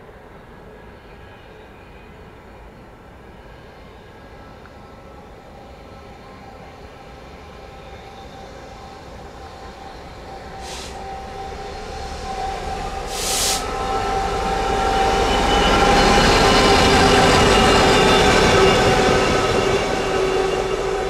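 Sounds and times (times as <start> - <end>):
train approaching: 0.0 - 21.0
hiss-like bursts: 10.6 - 11.2, 13.1 - 13.8.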